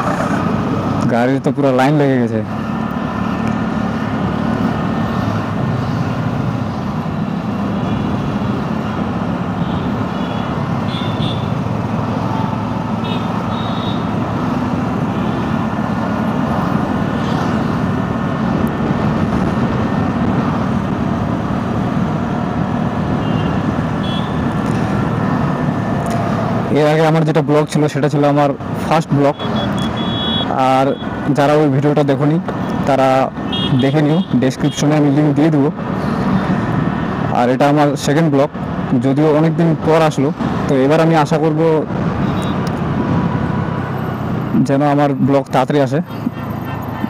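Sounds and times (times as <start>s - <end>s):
traffic engines in a jam: 0.0s - 47.0s.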